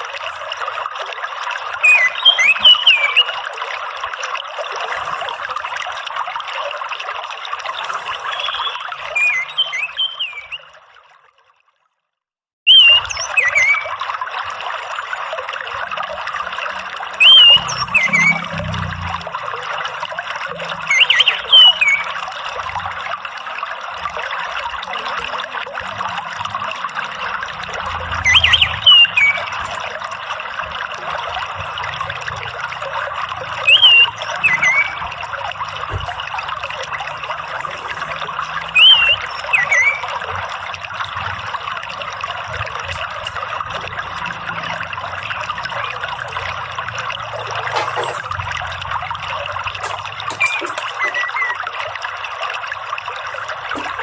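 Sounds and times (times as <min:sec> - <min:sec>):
water trickling: 0:00.0 - 0:12.0, 0:12.7 - 0:54.0
thrush whistling calls: 0:01.8 - 0:03.4, 0:08.1 - 0:10.7, 0:12.7 - 0:13.9, 0:17.2 - 0:18.7, 0:20.7 - 0:22.3, 0:27.8 - 0:30.0, 0:33.4 - 0:35.3, 0:37.8 - 0:40.4, 0:49.9 - 0:51.7.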